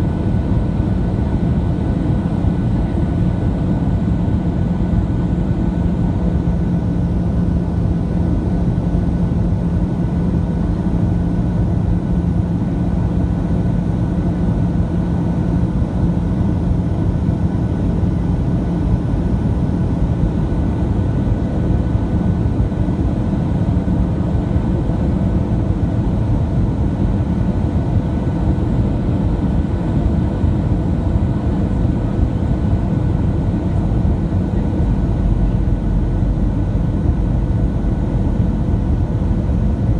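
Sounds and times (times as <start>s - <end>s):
airplane cabin drone: 0.0s - 39.9s
low hum: 33.2s - 39.9s.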